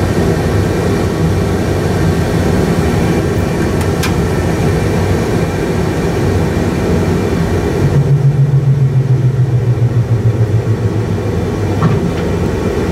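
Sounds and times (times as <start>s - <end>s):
engine and airflow rumble: 0.0s - 12.9s
low pulsing hum: 7.4s - 12.9s.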